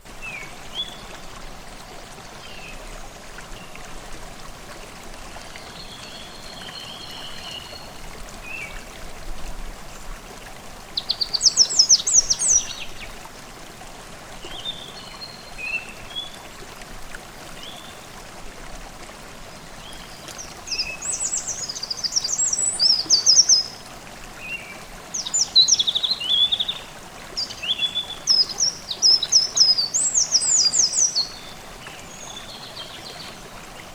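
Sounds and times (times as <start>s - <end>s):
stream babbling: 0.0s - 33.9s
songbirds singing: 10.8s - 13.2s, 19.8s - 33.9s.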